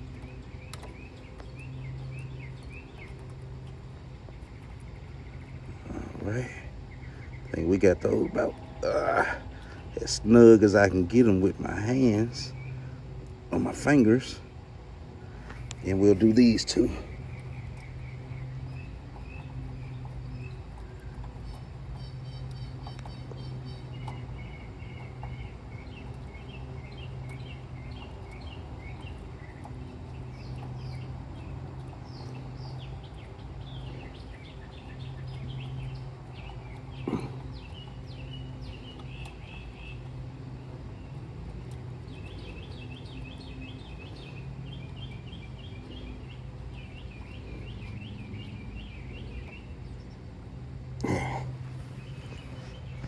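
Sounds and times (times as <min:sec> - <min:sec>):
small birds chirping: 0:00.0 - 0:53.0
steady low hum: 0:00.0 - 0:53.0.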